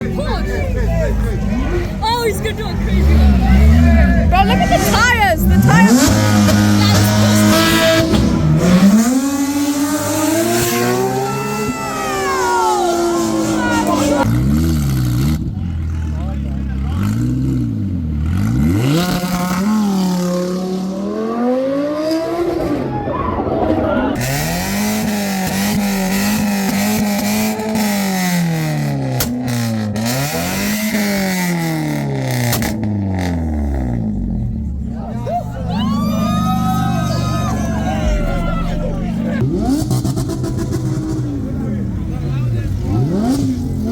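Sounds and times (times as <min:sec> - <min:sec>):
car engine revving hard: 0:00.0 - 0:22.8, 0:24.2 - 0:43.9.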